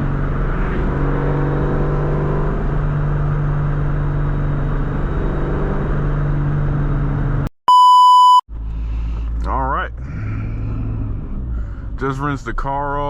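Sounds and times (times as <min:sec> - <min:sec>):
car engine droning: 0:00.0 - 0:07.5, 0:08.5 - 0:13.0
single-pitched beep: 0:07.7 - 0:08.4.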